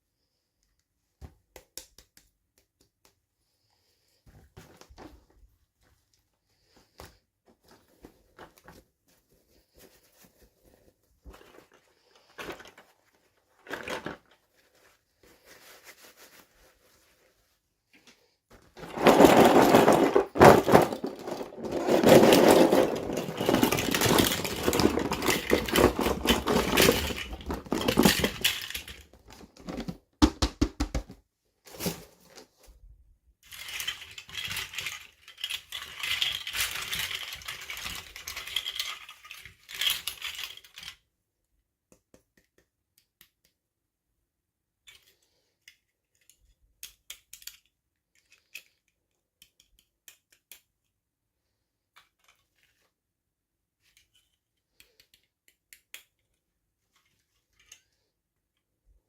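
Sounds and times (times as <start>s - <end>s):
packaging rustling and crinkling: 18.7s - 30.0s.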